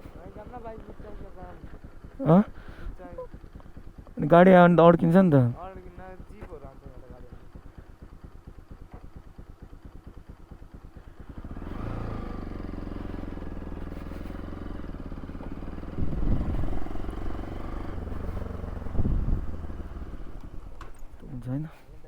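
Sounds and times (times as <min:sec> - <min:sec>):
low buffeting: 0:00.0 - 0:05.6, 0:15.7 - 0:22.0
motorcycle engine idling and revving: 0:00.0 - 0:22.0.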